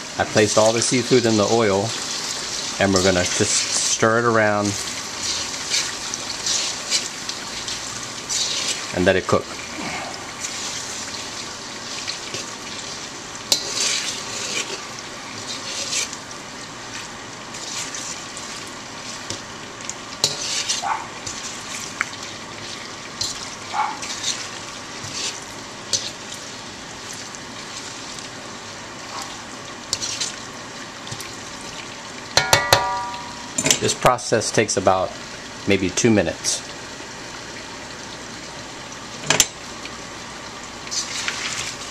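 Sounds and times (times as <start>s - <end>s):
seafood sizzling in oil: 0.0s - 41.9s
utensil scraping a wok: 0.4s - 16.2s, 16.9s - 19.4s, 20.2s - 26.3s, 29.2s - 30.4s, 40.9s - 41.9s.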